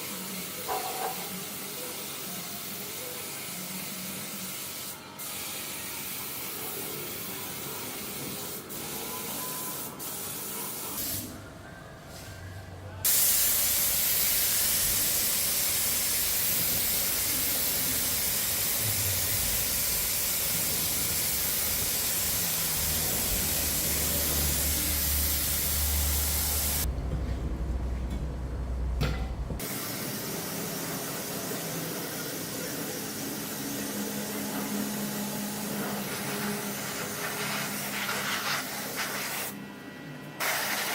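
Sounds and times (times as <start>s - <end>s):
spraying hiss: 13.1s - 26.9s.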